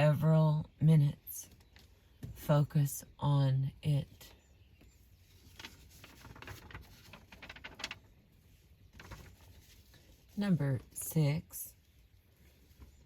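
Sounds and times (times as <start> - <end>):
faint small clicks and rustles: 5.2 - 10.4.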